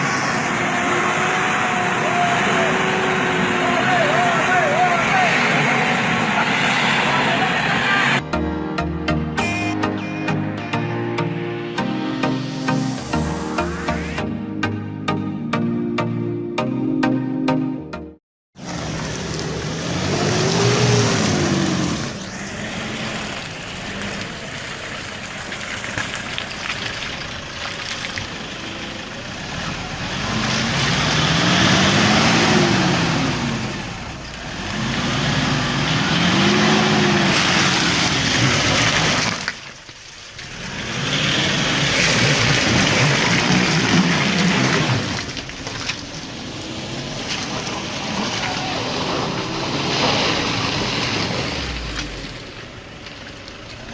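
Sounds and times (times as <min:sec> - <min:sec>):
truck engine revving: 0:00.0 - 0:10.0, 0:18.6 - 0:25.6, 0:28.7 - 0:39.5, 0:40.4 - 0:53.0.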